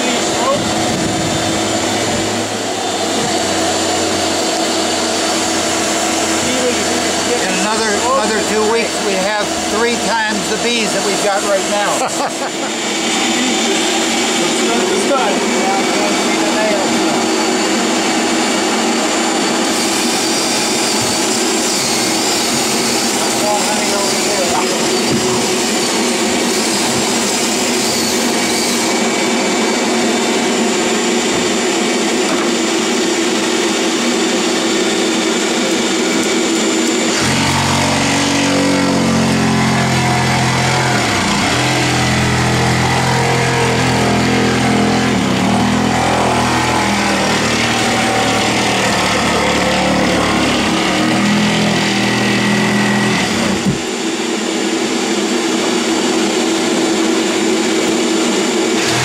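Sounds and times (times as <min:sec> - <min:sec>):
motor running: 0:00.0 - 0:54.5, 0:55.5 - 0:59.0
deep wavering hum: 0:35.3 - 0:53.7.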